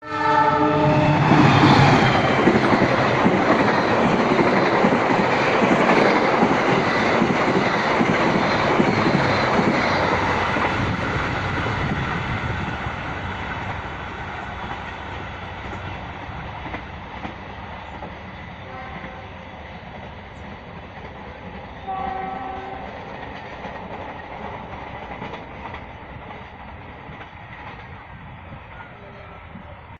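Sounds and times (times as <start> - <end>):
train horn: 0.0 - 2.0, 18.6 - 19.4, 21.8 - 23.0
train wheels rumbling on rails: 0.4 - 29.9.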